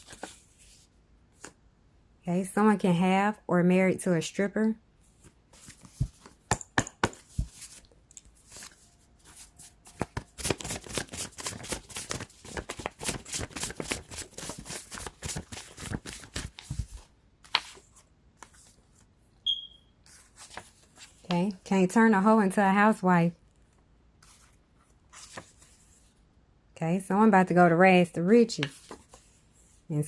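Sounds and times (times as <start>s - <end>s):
cards being shuffled: 0.0s - 0.8s, 5.2s - 18.8s, 25.1s - 25.8s.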